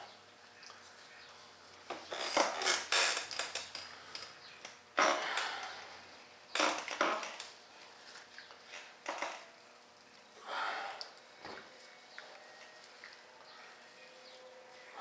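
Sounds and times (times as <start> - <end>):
crackling and rustling of materials: 0.5 - 5.9, 6.5 - 10.3.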